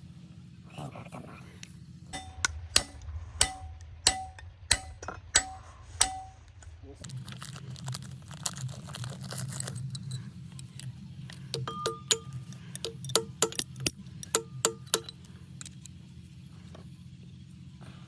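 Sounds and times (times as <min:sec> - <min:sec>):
steady low hum: 0:00.0 - 0:18.0
hammer striking metal: 0:02.2 - 0:06.9, 0:11.5 - 0:15.2.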